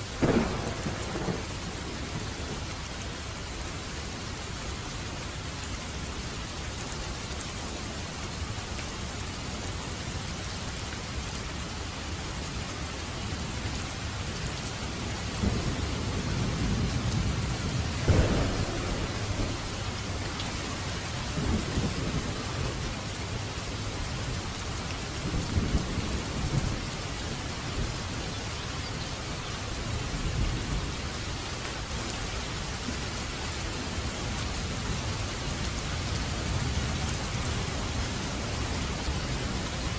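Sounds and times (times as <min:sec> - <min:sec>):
heavy rain: 0:00.0 - 0:39.9
sharp thunder crack: 0:00.2 - 0:01.5, 0:18.0 - 0:19.8
rolling thunder: 0:00.2 - 0:02.7, 0:15.3 - 0:23.4.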